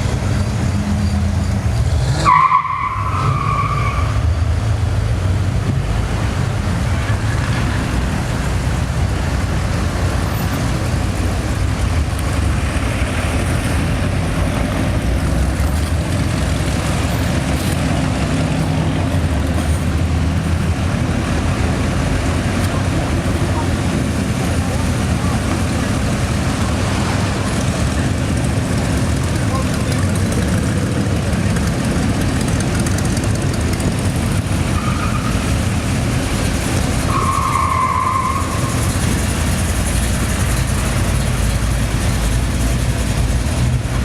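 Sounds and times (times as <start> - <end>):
car engines rumbling: 0.0 - 44.0
road noise: 0.0 - 44.0
crowd noise: 12.9 - 36.0.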